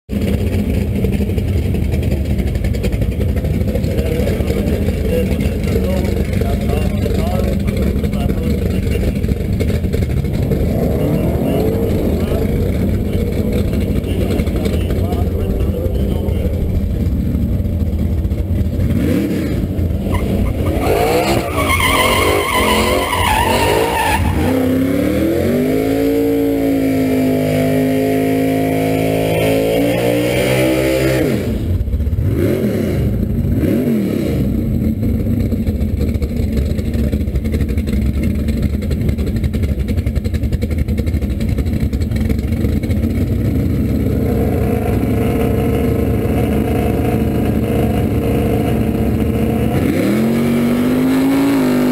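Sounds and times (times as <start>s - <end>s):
car driving with loud rush: 0.1s - 51.9s
car engine revving hard: 3.8s - 16.5s, 18.2s - 34.8s, 43.1s - 51.9s.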